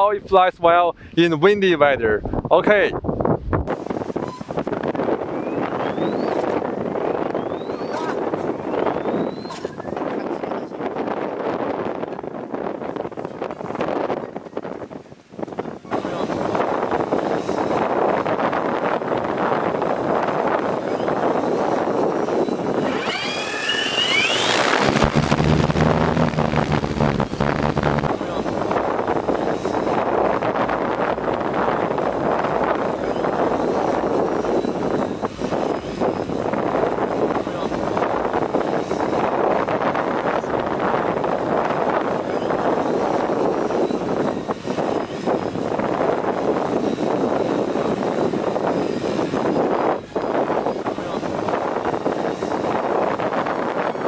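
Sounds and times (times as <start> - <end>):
wind buffeting microphone: 0.0 - 54.0
rising whine: 3.7 - 10.0, 15.9 - 54.0
drone propellers droning: 3.7 - 10.2, 15.9 - 54.0.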